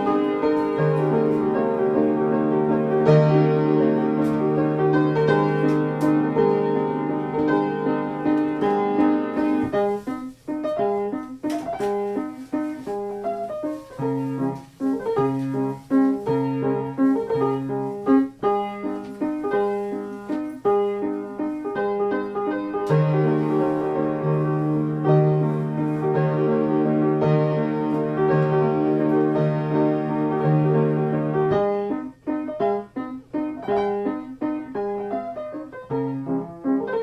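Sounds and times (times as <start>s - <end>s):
piano music: 0.0s - 37.0s.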